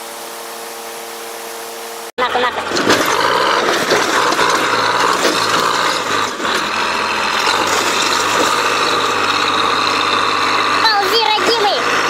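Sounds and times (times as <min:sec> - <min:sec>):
heavy machinery engine hum: 0:00.0 - 0:12.0
mechanical rattling and clanking: 0:02.6 - 0:10.8.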